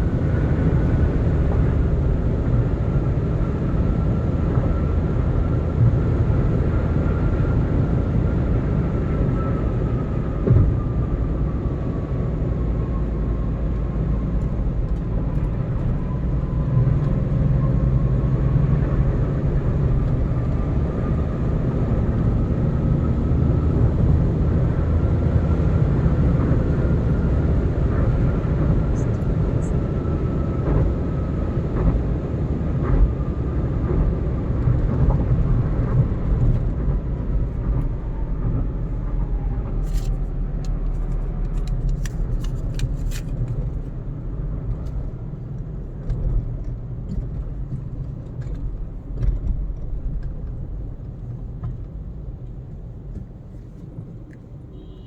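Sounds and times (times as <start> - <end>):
low rumble of tyres and engine: 0.0 - 55.0.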